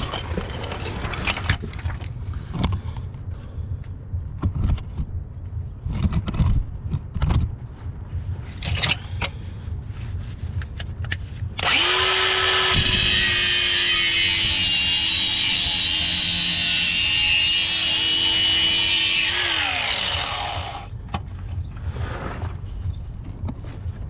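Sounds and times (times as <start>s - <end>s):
angle grinder cutting steel pipe: 11.6s - 20.9s
knocks and handling noise: 21.0s - 24.0s.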